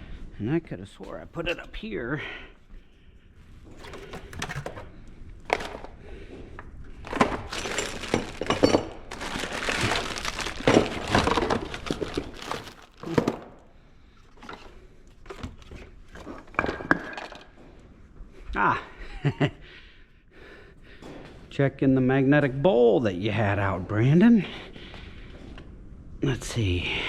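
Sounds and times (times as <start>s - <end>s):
tools clattering: 3.7s - 5.9s, 7.1s - 13.5s, 14.3s - 17.6s.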